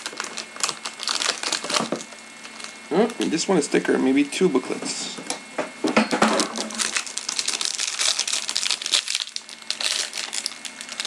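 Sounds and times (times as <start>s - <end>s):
wrapper crinkling and tearing: 0.0s - 2.8s, 6.3s - 11.0s.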